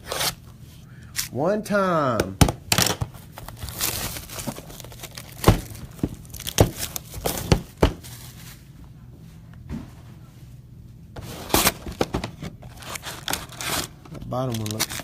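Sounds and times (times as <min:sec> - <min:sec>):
foil wrappers torn and crinkled: 0:02.7 - 0:08.5, 0:12.6 - 0:15.0.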